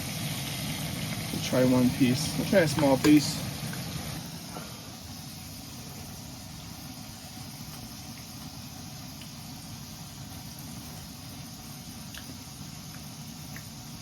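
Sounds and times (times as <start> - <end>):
oil popping: 0.0 - 4.3
fish deep-frying in oil: 0.0 - 14.0.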